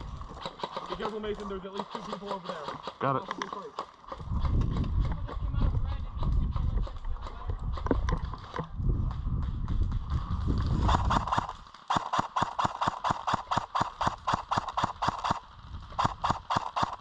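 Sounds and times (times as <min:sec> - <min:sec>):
wind rumble: 0:00.0 - 0:00.4, 0:04.1 - 0:11.7, 0:12.4 - 0:17.0
microphone handling noise: 0:04.1 - 0:11.6.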